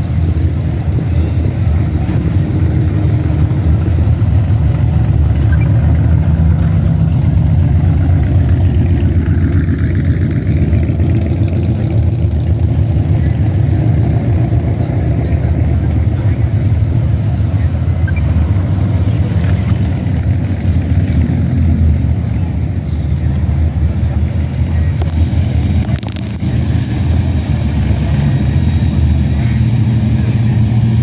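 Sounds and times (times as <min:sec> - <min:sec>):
car engines rumbling: 0:00.0 - 0:31.0.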